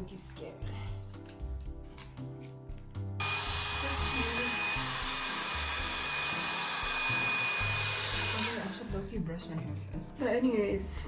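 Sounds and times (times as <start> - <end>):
hair dryer blowing: 3.2 - 8.9.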